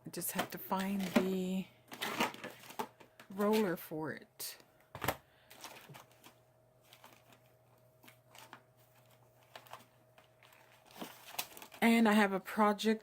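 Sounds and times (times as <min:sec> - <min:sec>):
low steady hum: 0:00.0 - 0:13.0
craft supplies clicking and rustling: 0:00.3 - 0:03.7.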